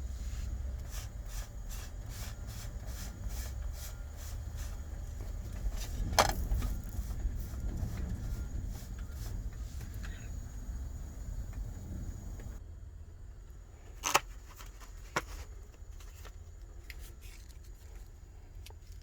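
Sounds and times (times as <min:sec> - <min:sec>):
vehicle engine rumble: 0:00.0 - 0:19.0.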